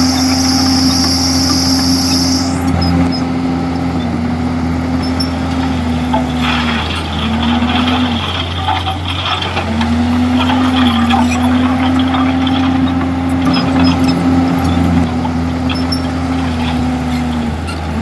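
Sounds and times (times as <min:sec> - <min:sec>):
bulldozer diesel engine under load: 0:00.0 - 0:18.0
rough rattling noise: 0:05.4 - 0:15.0.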